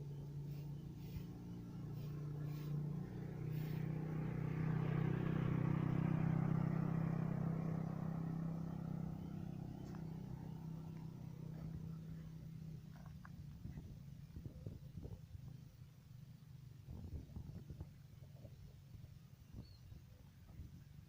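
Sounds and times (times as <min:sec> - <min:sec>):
vehicle passing by: 0:00.0 - 0:14.4.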